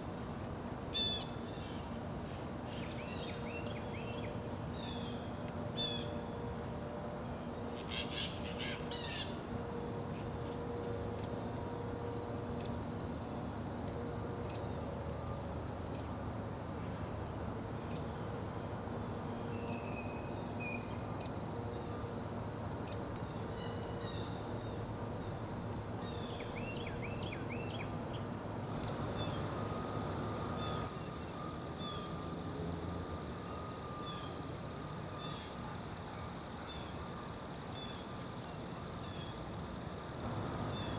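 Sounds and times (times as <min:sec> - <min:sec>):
steady low background noise: 0:00.0 - 0:40.9
high insect drone: 0:28.4 - 0:40.9.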